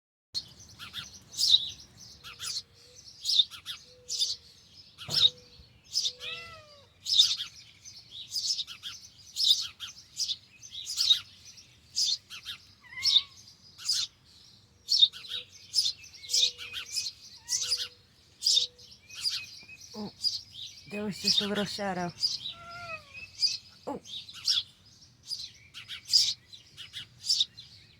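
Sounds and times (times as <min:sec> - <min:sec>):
nestling birds chirping: 0:00.4 - 0:27.9.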